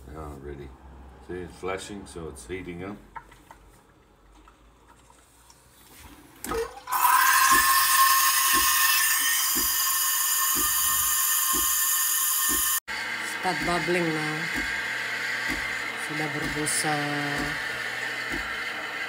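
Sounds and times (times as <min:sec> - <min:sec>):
milk frother steam hissing: 0:06.9 - 0:19.0.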